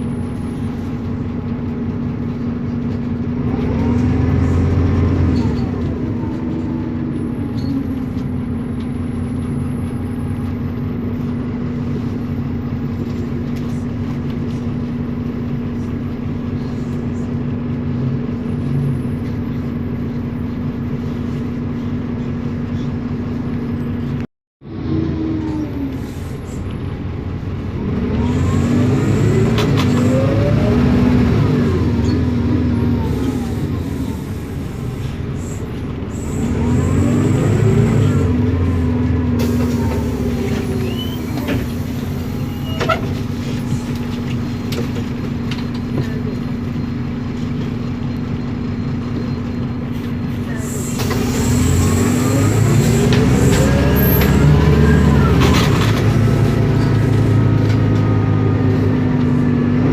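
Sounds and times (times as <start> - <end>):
bus diesel engine: 0.0 - 59.9.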